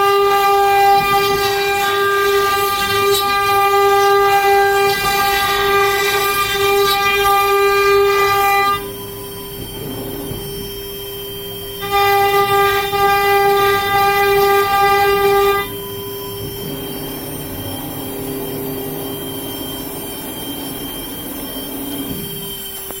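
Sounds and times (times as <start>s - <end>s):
router spindle whining: 0.0s - 23.0s
low steady hum: 4.8s - 22.6s.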